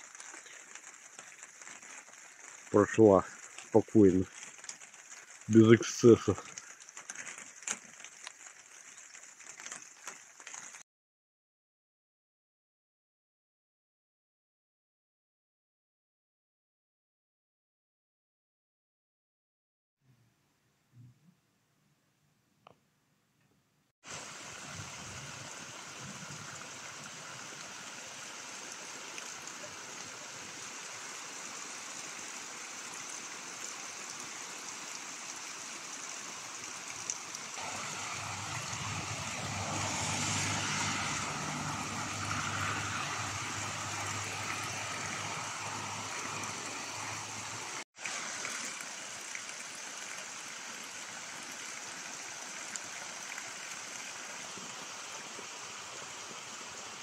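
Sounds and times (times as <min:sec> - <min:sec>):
steady rain falling: 0:00.0 - 0:10.8, 0:24.1 - 0:57.0
water running off eave: 0:00.0 - 0:10.8, 0:24.0 - 0:56.8.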